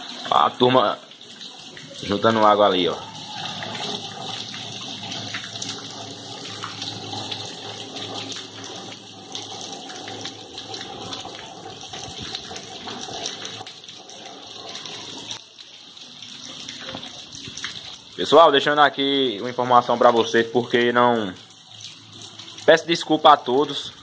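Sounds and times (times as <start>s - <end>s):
running water: 0.0s - 24.0s
heavy rain on cobblestones: 1.1s - 22.8s.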